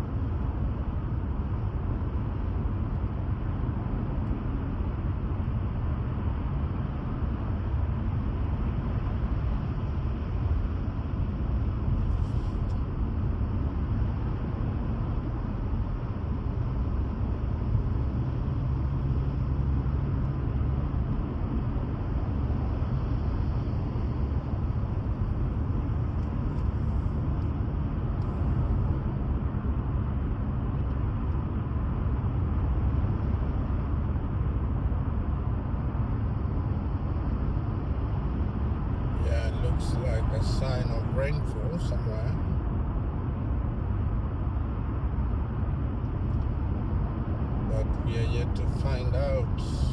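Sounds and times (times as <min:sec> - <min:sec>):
car driving rumble: 0:37.8 - 0:49.9.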